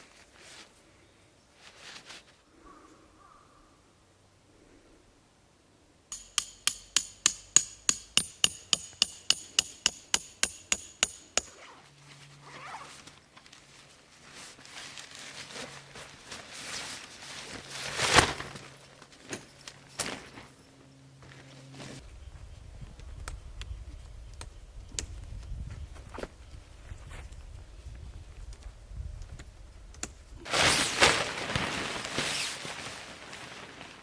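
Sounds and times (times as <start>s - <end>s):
rustling and handling noise: 0.0s - 2.5s, 11.4s - 23.2s, 30.2s - 34.0s
hammer striking metal stake: 6.1s - 11.7s.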